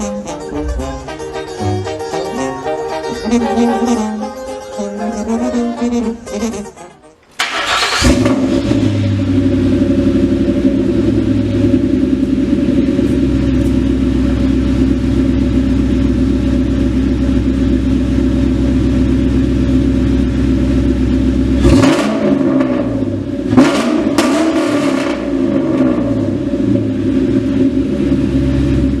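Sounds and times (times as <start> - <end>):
vehicle engine revving: 7.4 - 29.0.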